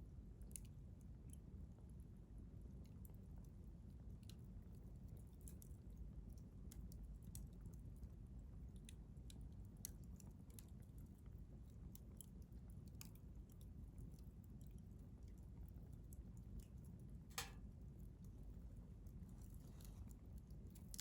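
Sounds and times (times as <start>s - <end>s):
low fire rumble: 0.0s - 21.0s.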